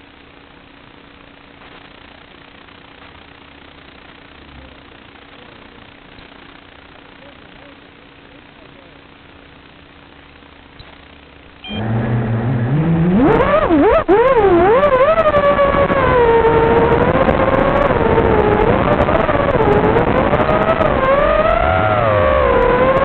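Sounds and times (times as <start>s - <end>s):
quadcopter motors whining: 11.6s - 23.0s.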